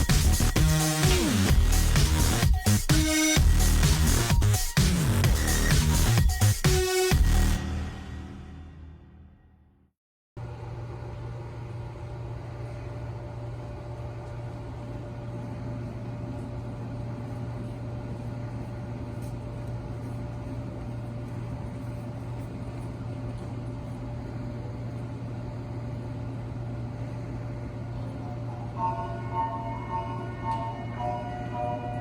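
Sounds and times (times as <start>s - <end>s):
electric train humming: 24.1s - 32.0s
faint high tone: 28.5s - 32.0s.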